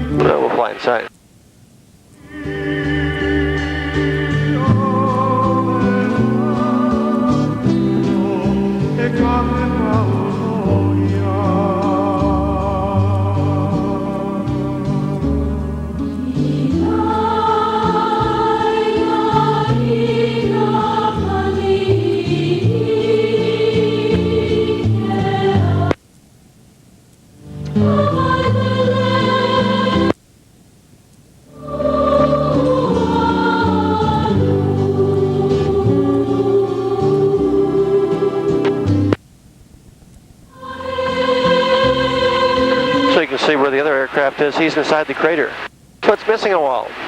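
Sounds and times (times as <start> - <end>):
choir singing held notes: 2.2 - 26.0, 27.4 - 30.2, 31.5 - 39.2, 40.5 - 45.7
low musical accompaniment: 2.3 - 25.8.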